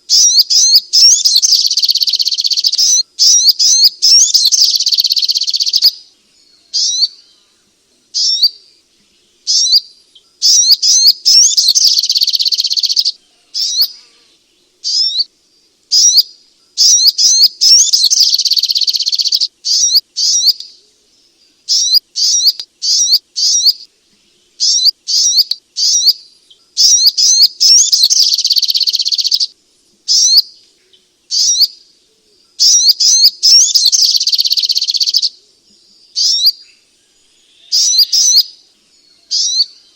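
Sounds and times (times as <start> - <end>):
bird chirping high and sharp: 0.1 - 6.0, 6.7 - 7.2, 8.2 - 8.6, 9.5 - 14.0, 14.8 - 15.3, 15.9 - 20.7, 21.7 - 23.9, 24.6 - 26.2, 26.8 - 29.5, 30.1 - 30.5, 31.3 - 31.8, 32.6 - 35.4, 36.2 - 36.7, 37.6 - 38.6, 39.3 - 39.8.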